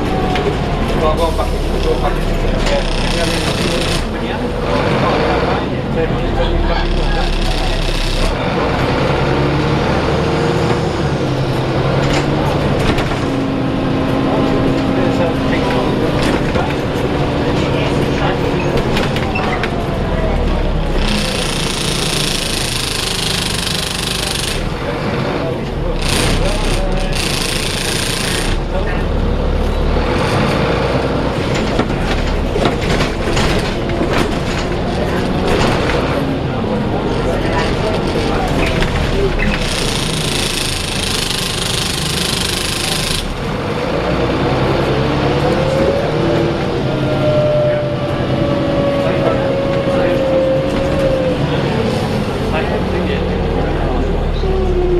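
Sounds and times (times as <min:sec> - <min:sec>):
bus engine idling roughly: 0:00.0 - 0:54.9
sharp engine knocks: 0:31.4 - 0:36.2.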